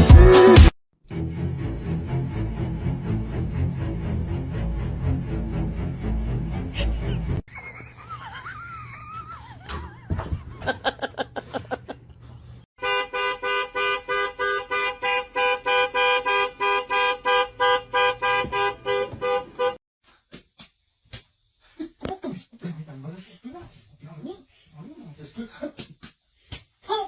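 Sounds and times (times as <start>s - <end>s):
two-tone horn beeping: 12.8s - 19.8s.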